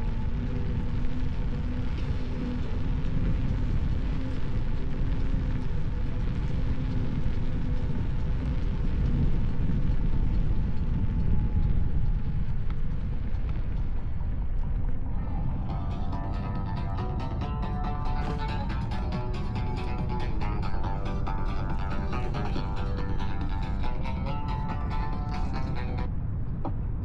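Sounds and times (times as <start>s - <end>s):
wind buffeting microphone: 0.0s - 27.0s
plucked string music: 15.2s - 26.1s.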